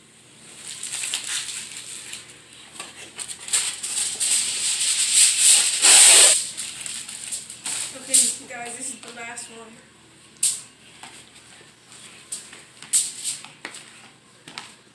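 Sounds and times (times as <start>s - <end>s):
aluminium foil crinkling: 0.5s - 9.2s.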